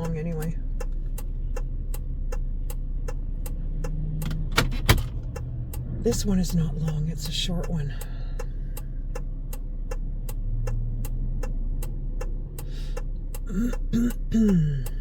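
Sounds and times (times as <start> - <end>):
person's voice: 0.0 - 0.6, 6.0 - 8.4, 13.5 - 15.0
idling car hum: 0.0 - 15.0
turn signal ticking: 0.0 - 15.0.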